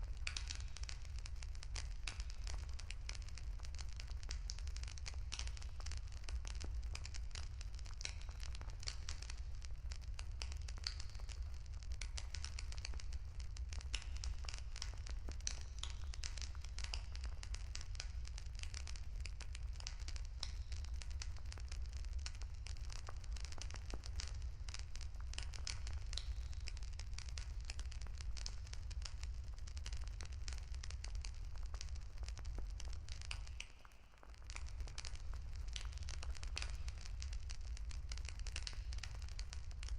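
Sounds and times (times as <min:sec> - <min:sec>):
wood bonfire crackling: 0:00.0 - 0:39.9.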